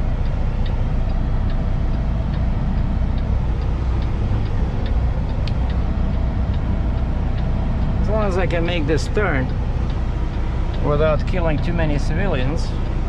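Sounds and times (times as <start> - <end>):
diesel truck engine running: 0.0 - 13.0
turn signal ticking: 0.0 - 13.0.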